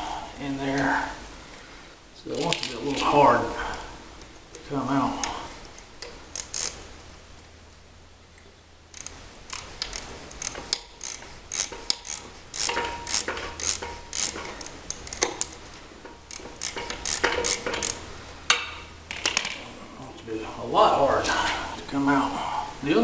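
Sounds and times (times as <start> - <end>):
metal clicks and clunks: 8.4 - 19.7.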